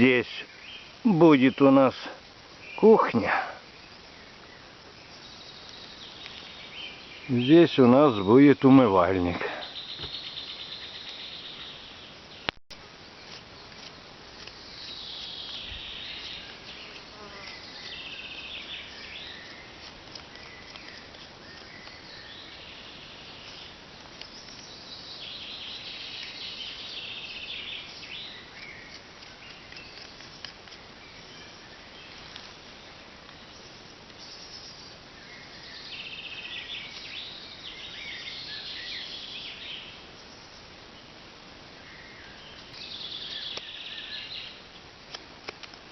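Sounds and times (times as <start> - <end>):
insects chirring: 0.0 - 45.9
small ticks: 19.3 - 22.0, 28.0 - 30.8.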